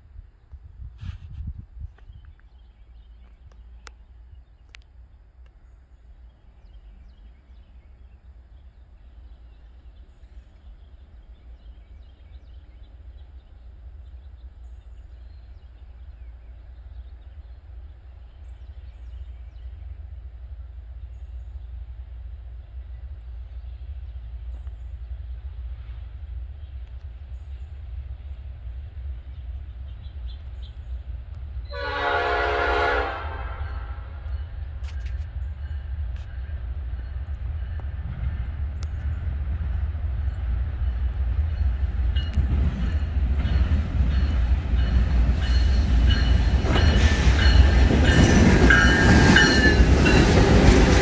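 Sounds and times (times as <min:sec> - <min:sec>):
freight train rumble: 0:00.0 - 0:51.0.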